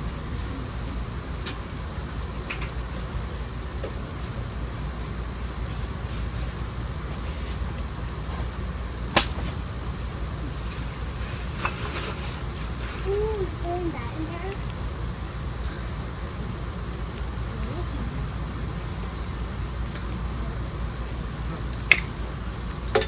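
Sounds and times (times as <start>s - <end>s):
campfire pops: 1.3s - 1.7s, 9.1s - 9.7s, 21.7s - 22.2s.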